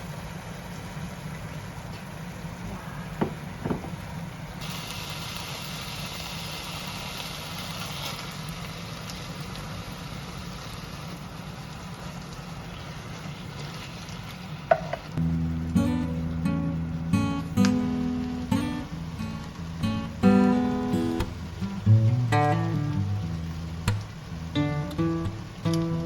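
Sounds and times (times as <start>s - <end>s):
knock: 3.2s - 4.0s
food sizzling in a frying pan: 4.6s - 26.0s
steady low hum: 15.2s - 26.0s.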